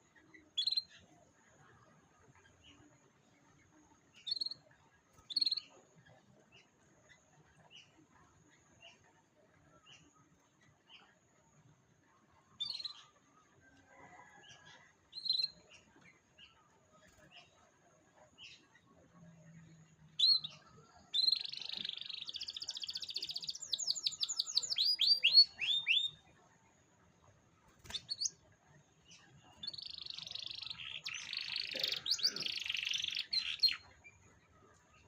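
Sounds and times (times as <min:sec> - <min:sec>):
canary singing trills: 0:00.0 - 0:01.1, 0:04.0 - 0:08.0, 0:12.5 - 0:13.2, 0:14.0 - 0:26.4, 0:27.7 - 0:34.3.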